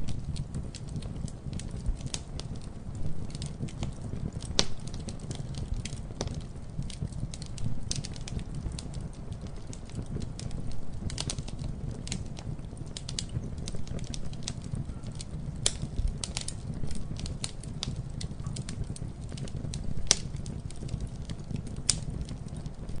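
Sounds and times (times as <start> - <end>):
burning wood crackling and popping: 0.0 - 23.0
campfire rumbling: 0.0 - 23.0.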